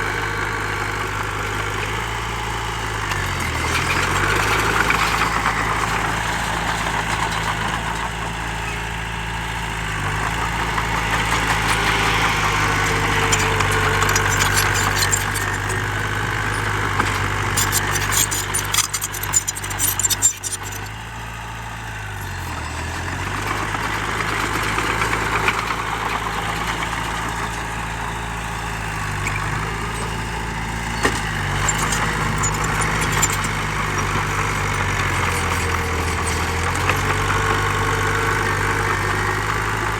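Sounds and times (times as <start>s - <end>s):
heavy diesel engine running: 0.0s - 39.9s
rattling and clanking: 10.3s - 20.9s, 28.9s - 39.2s.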